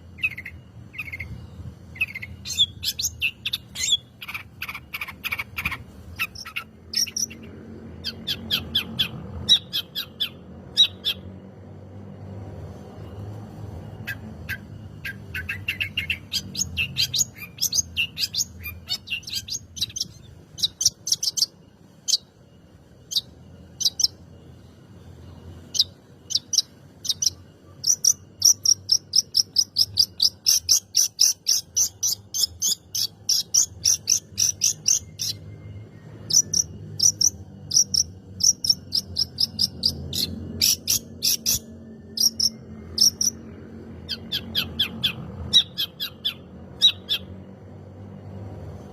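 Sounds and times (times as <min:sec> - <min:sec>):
shrike chattering: 0:02.0 - 0:10.2.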